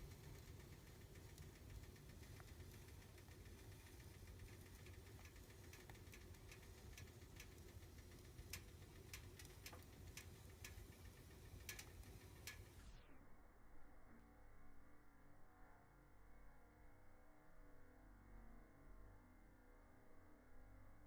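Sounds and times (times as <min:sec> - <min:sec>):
fire crackling in fireplace: 0:00.0 - 0:13.0.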